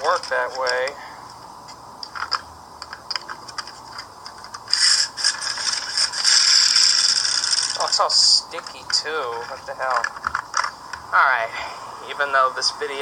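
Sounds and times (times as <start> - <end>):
plastic toy scraping and rattling: 0.0 - 1.0, 2.1 - 10.8.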